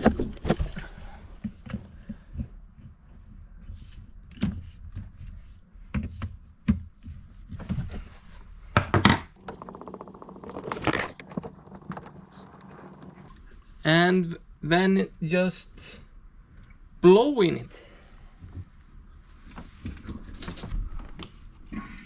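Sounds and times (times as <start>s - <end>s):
fast buzzing rattle: 9.4s - 13.3s.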